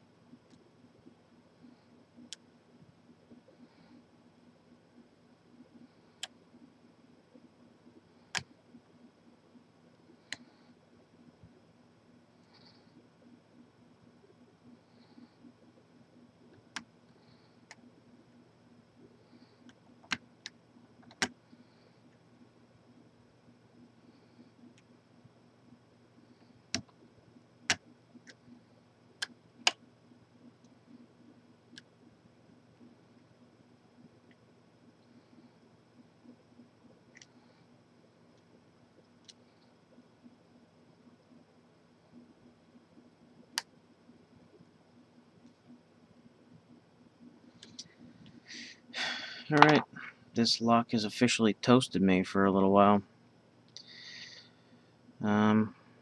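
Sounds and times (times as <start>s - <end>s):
faint low hum: 0.0s - 56.0s.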